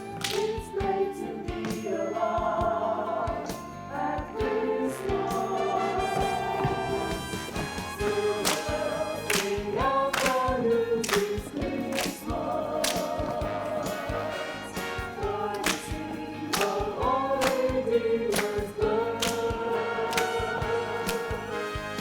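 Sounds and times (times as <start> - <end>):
backing music: 0.0 - 22.0
choir singing chords: 0.0 - 22.0
sharp percussive beats: 5.2 - 22.0.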